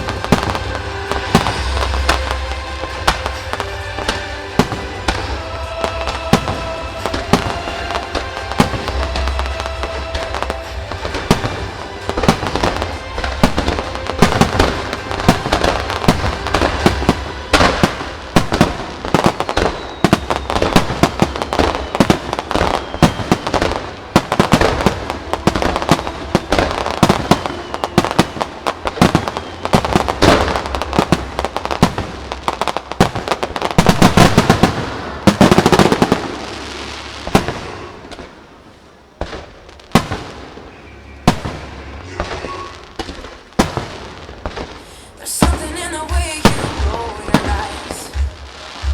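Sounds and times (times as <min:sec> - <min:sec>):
fireworks bangs and crackles: 0:00.0 - 0:48.9.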